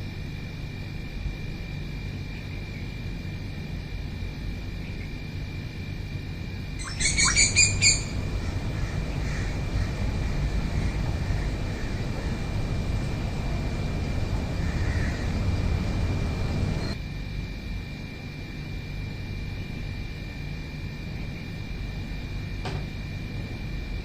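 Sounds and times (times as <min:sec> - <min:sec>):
steady low rumble: 0:00.0 - 0:22.5
bird calling loudly: 0:06.8 - 0:12.4.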